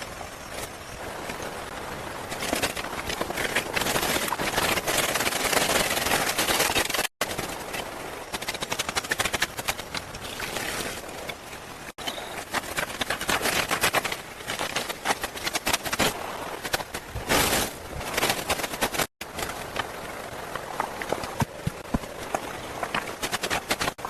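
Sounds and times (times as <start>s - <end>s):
rustling noise: 0.0s - 24.0s
rapid irregular knocks and clicks: 2.3s - 11.4s, 18.0s - 24.0s.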